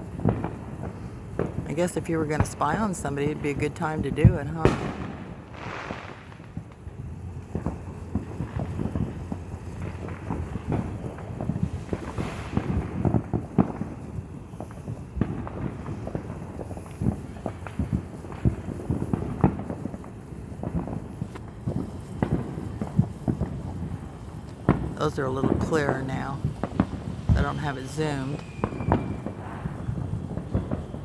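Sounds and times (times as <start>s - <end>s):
distant fireworks popping: 0.0s - 31.0s.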